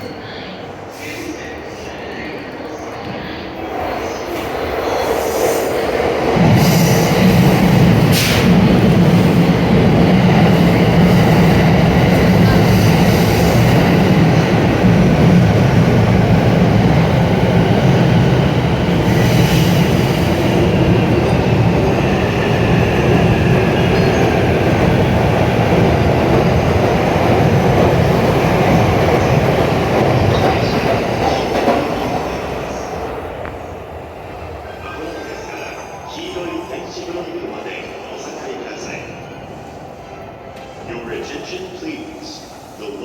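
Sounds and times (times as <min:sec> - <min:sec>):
train wheels rumbling on rails: 0:03.9 - 0:34.8.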